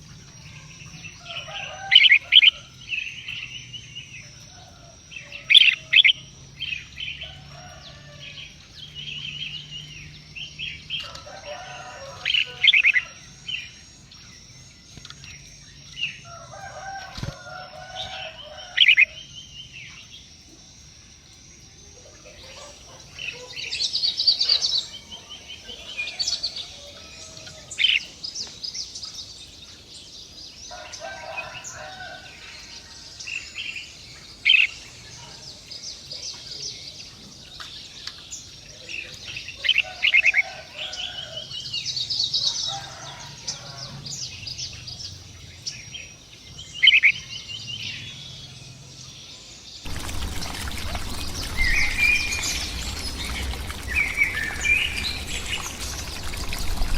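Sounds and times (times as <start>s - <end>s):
birds chirping: 49.6s - 56.9s
birds chattering calls: 49.9s - 56.9s.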